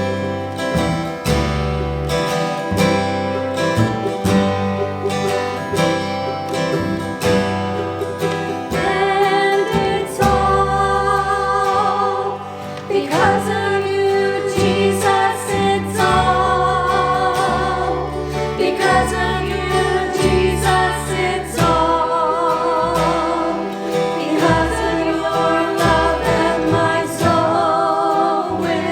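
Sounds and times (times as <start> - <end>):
gospel singers: 0.0 - 28.9
instrumental accompaniment with bass: 0.0 - 28.9.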